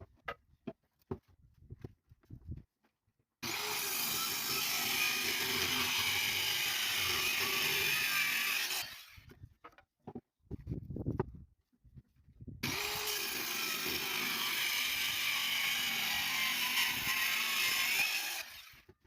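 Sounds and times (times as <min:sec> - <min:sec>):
power tool cutting wood: 0:03.4 - 0:09.3, 0:12.6 - 0:18.9.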